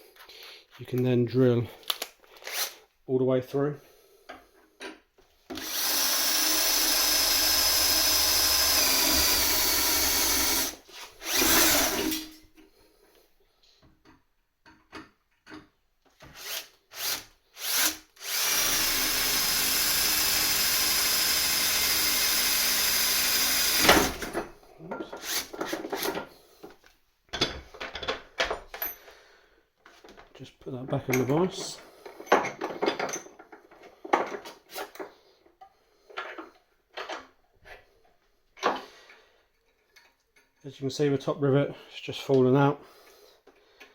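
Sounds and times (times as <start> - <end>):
electric drill drilling metal: 5.5 - 12.3, 16.4 - 24.4.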